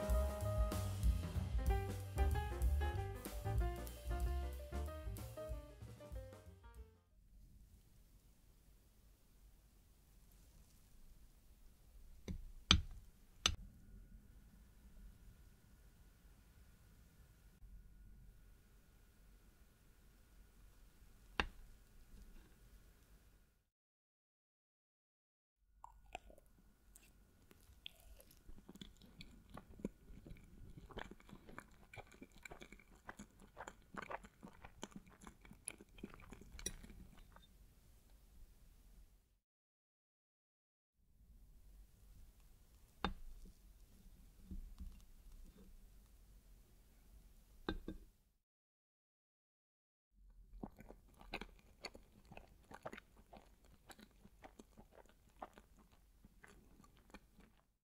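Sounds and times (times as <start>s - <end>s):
wet mouth chewing: 25.8s - 37.5s, 50.5s - 57.7s.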